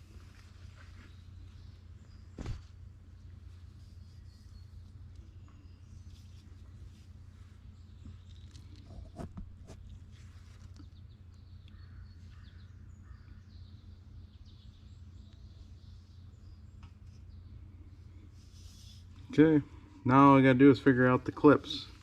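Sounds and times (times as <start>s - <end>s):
steady low hum: 0.0s - 22.0s
faint bird chirps: 3.2s - 9.2s.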